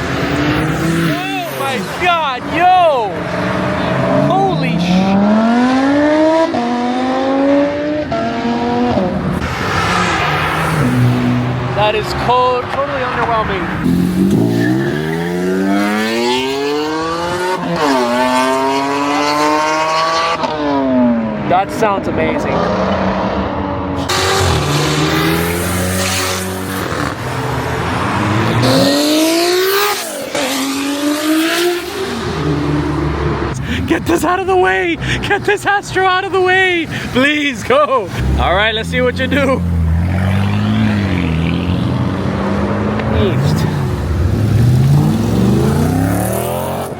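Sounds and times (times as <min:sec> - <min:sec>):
car engine accelerating hard: 0:00.0 - 0:34.0, 0:38.0 - 0:46.9
engines idling: 0:31.8 - 0:42.0.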